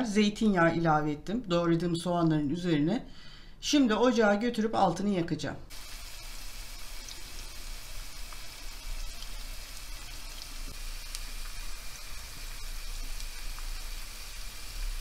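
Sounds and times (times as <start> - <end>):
onions sizzling in a pan: 5.7 - 15.0.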